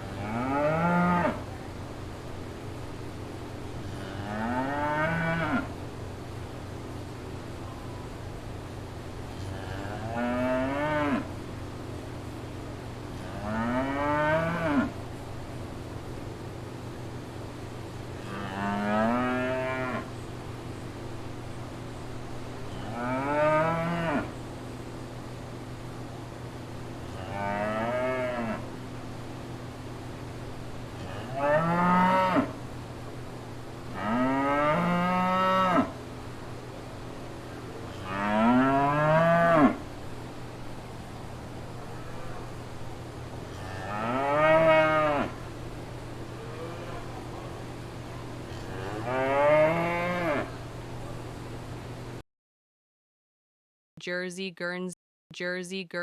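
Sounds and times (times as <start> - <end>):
steady low hum: 0.0 - 52.2
cow mooing: 0.1 - 1.4, 9.5 - 11.3, 13.2 - 15.0, 18.3 - 20.1, 22.8 - 24.3, 31.0 - 32.5, 38.0 - 39.8, 43.6 - 45.4, 48.7 - 50.5.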